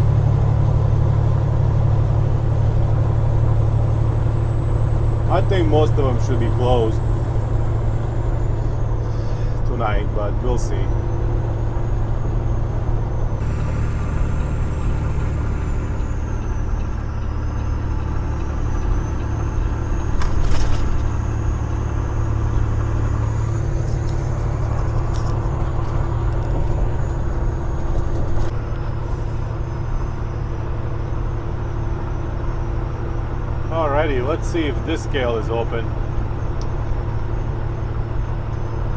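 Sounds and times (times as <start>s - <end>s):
road noise: 0.0s - 38.9s
truck engine drone: 0.0s - 38.9s.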